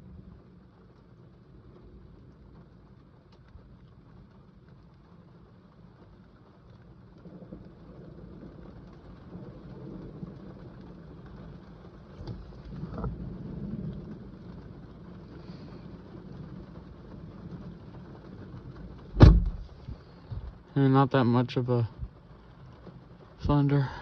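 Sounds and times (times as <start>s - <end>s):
distant thunder rumble: 7.0s - 20.7s
sharp thump: 19.2s - 19.6s.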